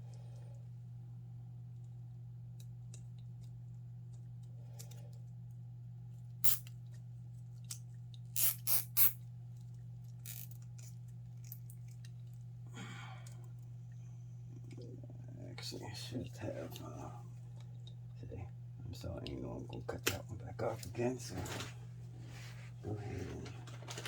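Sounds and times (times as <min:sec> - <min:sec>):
low electrical hum: 0:00.0 - 0:24.0
cable ties zipping: 0:06.4 - 0:06.7, 0:08.4 - 0:09.2, 0:10.3 - 0:10.9.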